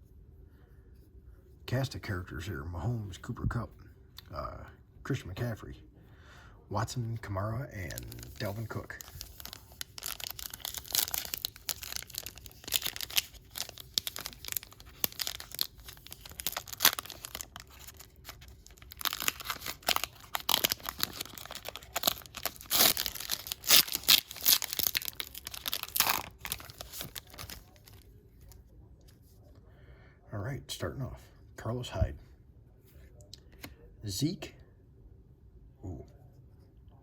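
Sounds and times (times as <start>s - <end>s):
foil wrapper tearing and crinkling: 7.8s - 28.0s.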